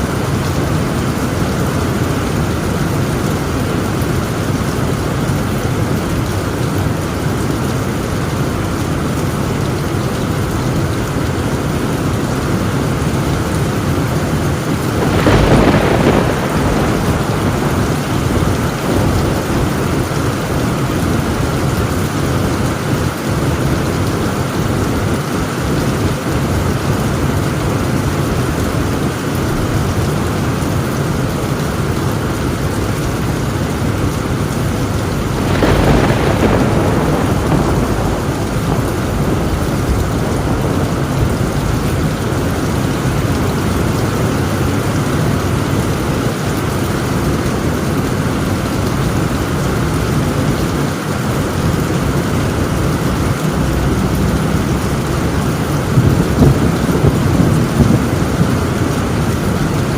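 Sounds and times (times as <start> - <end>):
heavy rain on a tin roof: 0.0 - 59.9
thunderclap: 13.2 - 23.3, 32.8 - 45.6, 51.6 - 59.9.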